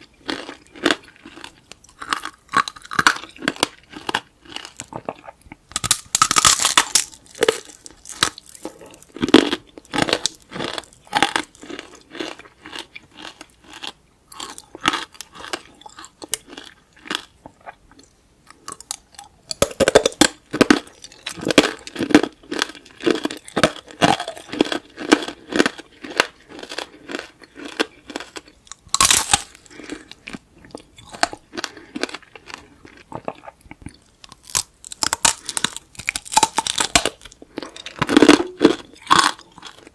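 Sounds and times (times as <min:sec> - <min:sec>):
candy shell crunching in chewing: 0:00.1 - 0:39.9.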